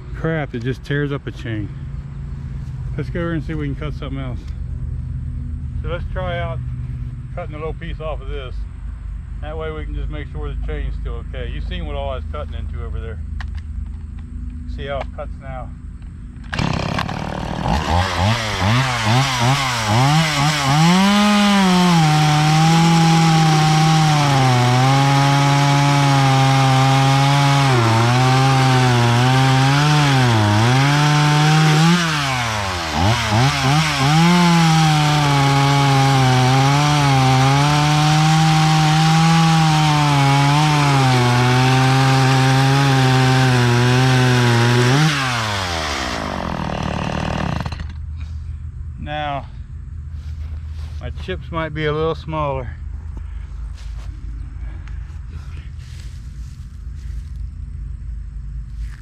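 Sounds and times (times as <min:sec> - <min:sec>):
chainsaw cutting wood: 0:16.5 - 0:48.0.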